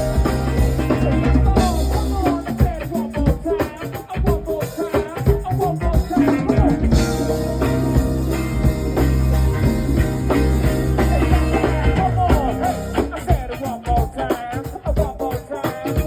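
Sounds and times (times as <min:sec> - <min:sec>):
busy melodic line: 0:00.0 - 0:02.9, 0:06.0 - 0:13.6
steady bass: 0:00.0 - 0:04.5, 0:05.4 - 0:14.3
drum kit: 0:00.0 - 0:16.0.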